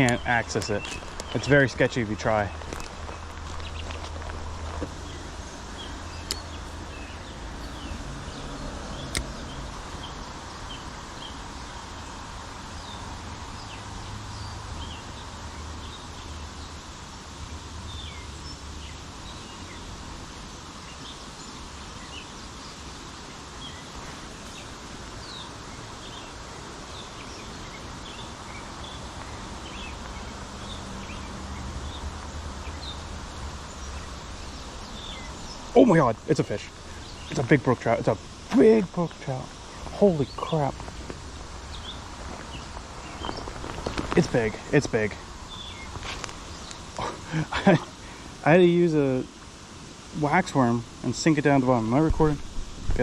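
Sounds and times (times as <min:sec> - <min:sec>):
bird chirps: 0:00.0 - 0:12.1, 0:23.6 - 0:41.1, 0:41.7 - 0:48.1
steady stream hiss: 0:00.0 - 0:53.0
sharp clicks: 0:09.1 - 0:09.4.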